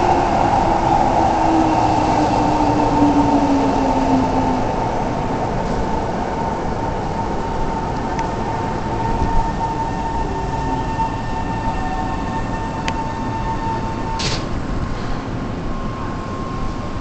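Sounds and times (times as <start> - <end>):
electric train high whine: 0.0 - 17.0.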